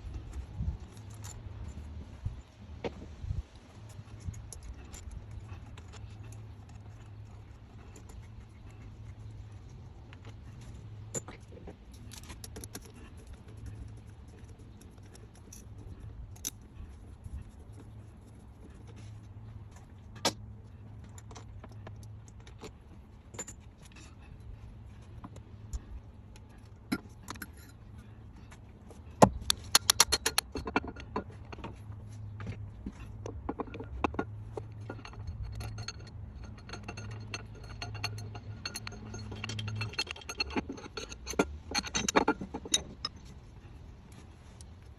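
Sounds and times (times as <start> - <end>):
low steady hum: 0.0 - 44.9
metal tools clinking: 0.2 - 1.9, 21.0 - 44.8.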